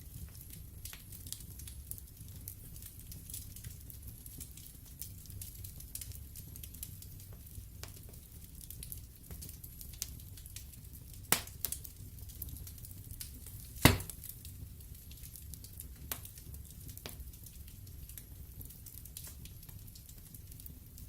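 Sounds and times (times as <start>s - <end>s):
wood fire crackling: 0.0s - 21.0s
sharp pops of burning wood: 9.3s - 17.3s.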